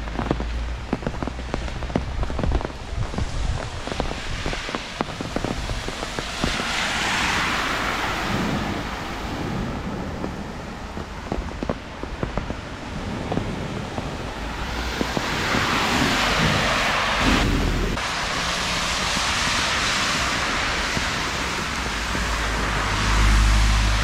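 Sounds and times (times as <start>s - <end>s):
low rumble: 0.0s - 18.3s
heavy rain pouring: 0.0s - 24.0s.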